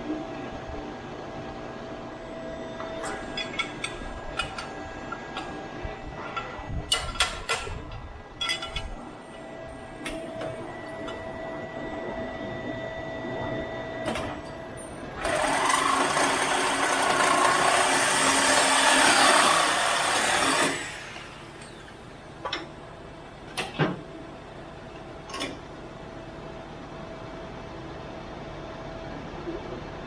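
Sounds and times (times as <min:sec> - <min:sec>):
power tool running: 0:15.2 - 0:22.1.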